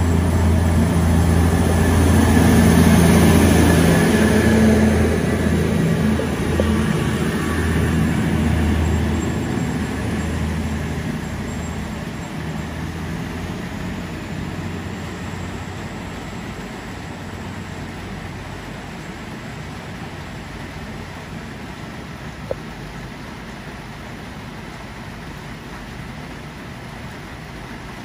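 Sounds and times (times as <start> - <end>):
electric train hum and rumble: 0.0 - 28.0.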